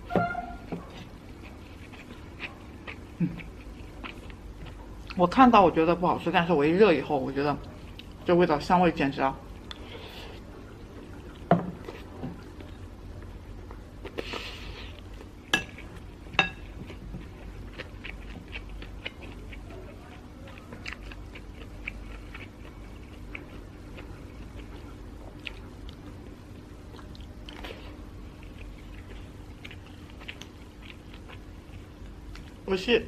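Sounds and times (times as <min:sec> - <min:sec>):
chewing with mouth clicks: 0:00.8 - 0:05.2, 0:13.6 - 0:32.6.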